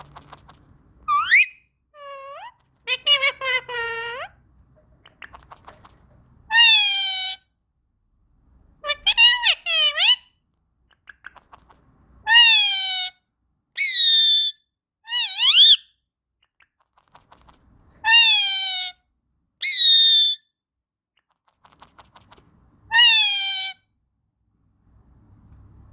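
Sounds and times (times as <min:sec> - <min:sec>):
parrot calling: 0:00.0 - 0:04.4, 0:05.0 - 0:07.5, 0:08.8 - 0:10.4, 0:11.0 - 0:13.2, 0:13.8 - 0:16.0, 0:18.0 - 0:19.0, 0:19.6 - 0:20.5, 0:22.9 - 0:23.9.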